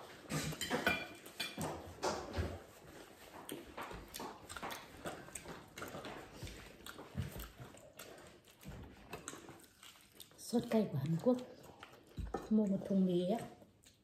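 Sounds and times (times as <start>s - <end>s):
chewing crispy fried chicken: 2.8s - 14.0s.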